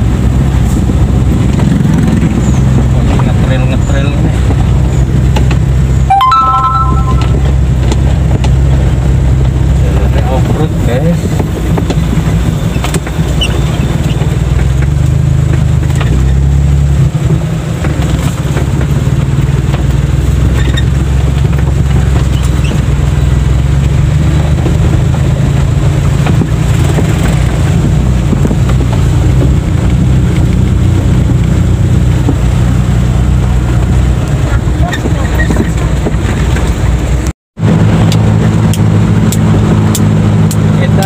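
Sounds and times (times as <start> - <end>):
car engine droning: 0.0 - 41.0.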